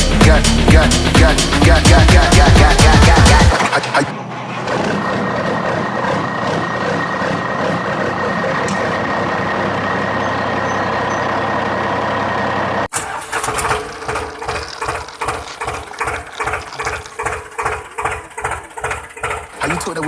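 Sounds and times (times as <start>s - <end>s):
vehicle engine running: 0.0s - 20.0s
choppy rattling sound: 13.3s - 20.0s.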